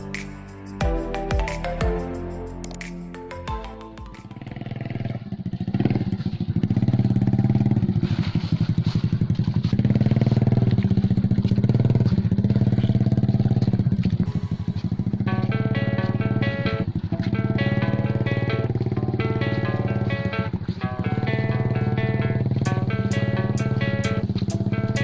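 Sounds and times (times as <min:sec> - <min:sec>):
music: 0:00.0 - 0:04.9, 0:14.3 - 0:25.0
small engine running: 0:04.3 - 0:25.0.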